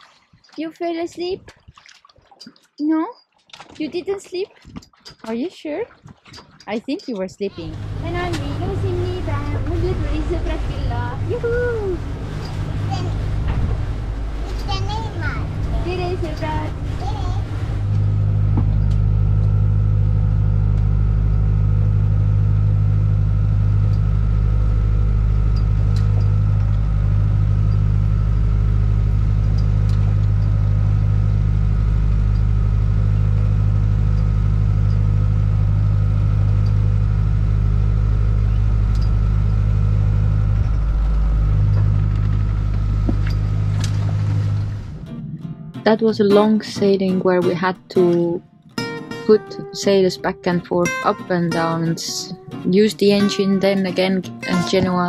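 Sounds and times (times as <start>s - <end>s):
diesel engine droning: 7.4s - 55.0s.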